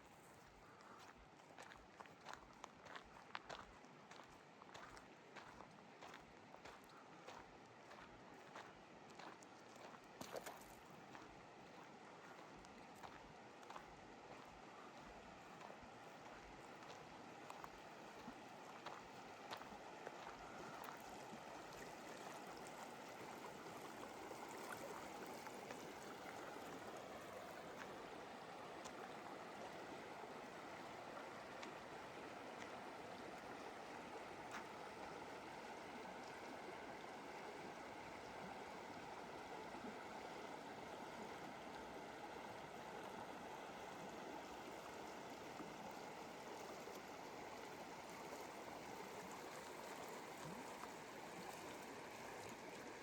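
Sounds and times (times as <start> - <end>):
river water flowing: 0.0 - 53.0.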